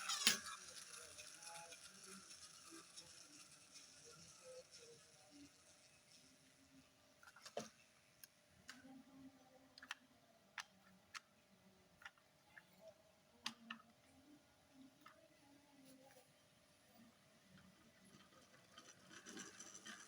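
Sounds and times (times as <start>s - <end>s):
clicks of toy cars handled: 0.0s - 0.6s, 7.2s - 8.9s, 13.4s - 13.8s.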